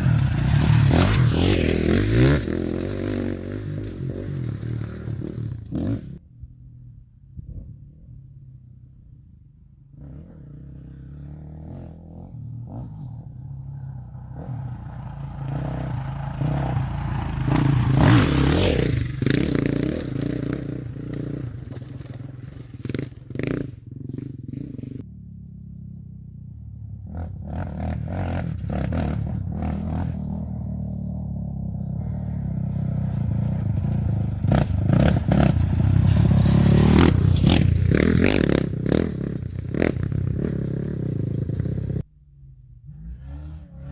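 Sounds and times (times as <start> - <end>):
gravel clattering under tyres: 14.5 - 24.8, 31.6 - 42.0.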